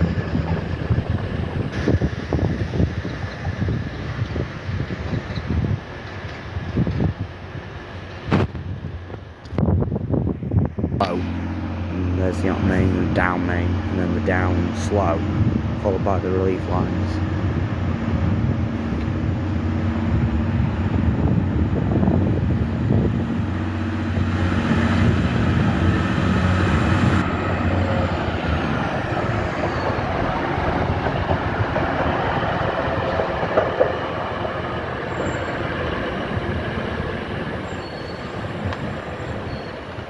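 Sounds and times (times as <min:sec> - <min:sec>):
steady low hum: 0:00.0 - 0:02.0, 0:11.0 - 0:32.7
train wheels rumbling on rails: 0:00.0 - 0:40.0.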